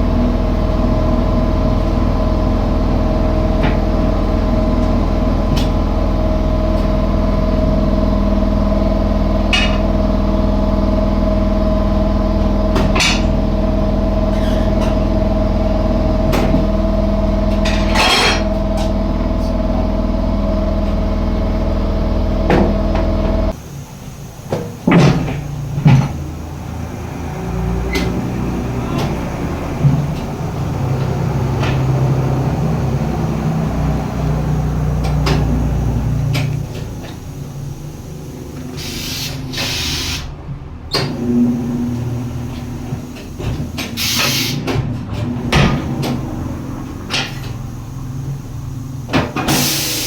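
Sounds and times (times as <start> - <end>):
low motor hum: 0.0 - 24.2, 24.8 - 38.8
hissing air bursts: 38.6 - 40.4, 47.8 - 50.0.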